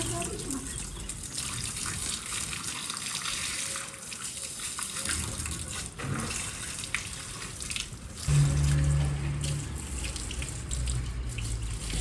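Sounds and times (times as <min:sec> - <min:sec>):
water running from a tap: 0:00.0 - 0:12.0
low steady hum: 0:08.3 - 0:11.6.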